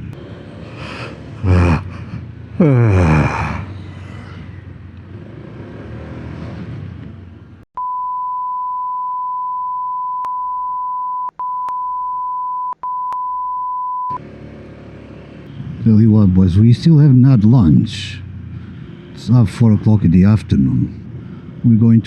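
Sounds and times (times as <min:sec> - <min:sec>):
wind and road noise: 0:00.0 - 0:07.7, 0:14.2 - 0:22.0
steady censor beep tone: 0:07.8 - 0:14.2.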